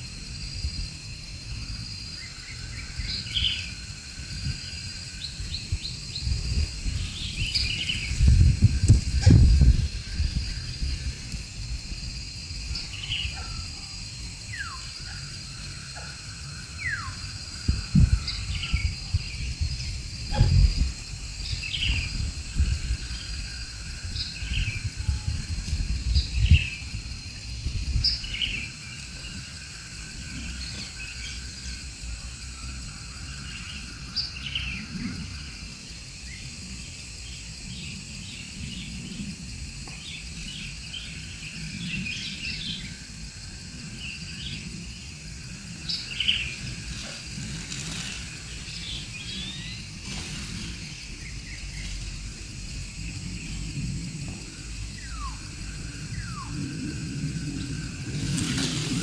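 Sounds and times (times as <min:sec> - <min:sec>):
high-pitched insect drone: 0:00.0 - 0:59.0.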